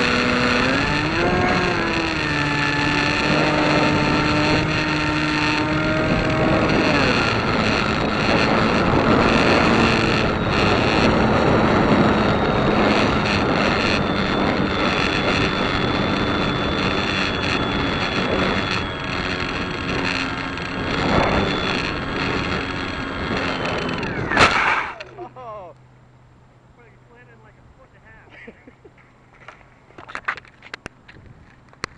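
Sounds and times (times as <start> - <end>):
wind buffeting microphone: 0.0 - 25.1
engine running: 0.0 - 31.9.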